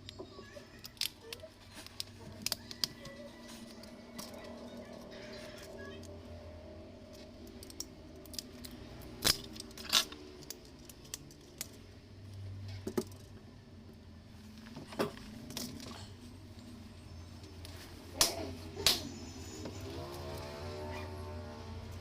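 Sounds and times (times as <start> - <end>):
small tools clicking and clinking: 7.0 - 13.4.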